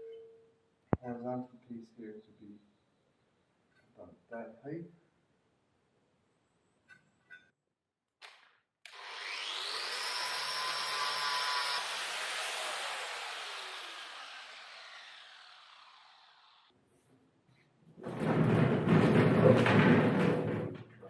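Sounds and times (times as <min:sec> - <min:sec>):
power tool motor whining: 0:08.9 - 0:16.7.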